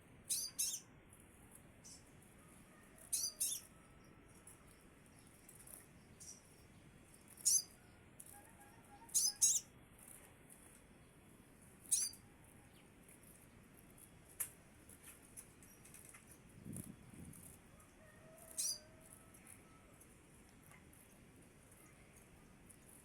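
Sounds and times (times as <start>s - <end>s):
bird high sharp calls: 0.3s - 0.9s, 3.0s - 3.8s, 7.4s - 7.8s, 8.9s - 9.7s, 11.9s - 12.2s, 18.4s - 18.9s.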